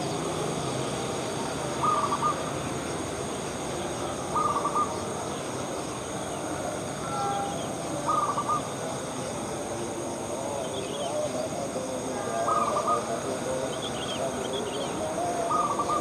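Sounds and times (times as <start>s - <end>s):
steady outdoor hiss: 0.0s - 16.0s
dove cooing: 15.0s - 16.0s.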